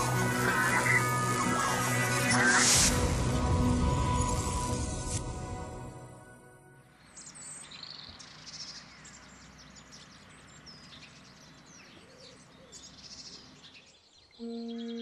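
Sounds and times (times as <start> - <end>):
music: 0.0 - 7.0, 14.4 - 15.0
small birds chirping: 7.0 - 15.0.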